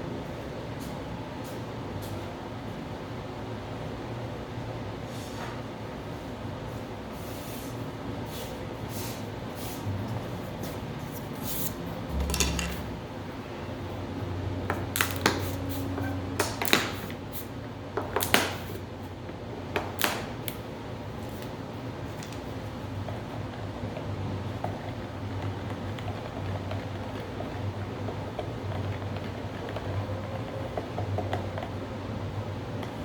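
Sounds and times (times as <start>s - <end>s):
tools clicking and knocking: 12.1s - 12.9s.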